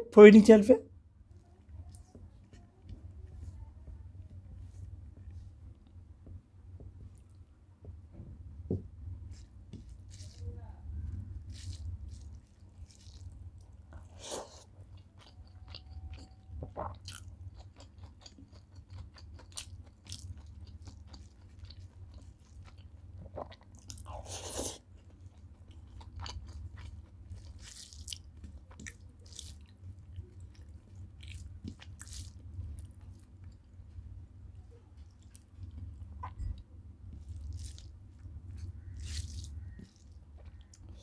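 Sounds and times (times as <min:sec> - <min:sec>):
steady low hum: 0:00.0 - 0:41.0
fingers squishing rice on plate: 0:09.3 - 0:10.5, 0:35.0 - 0:41.0
man chewing food: 0:11.1 - 0:41.0.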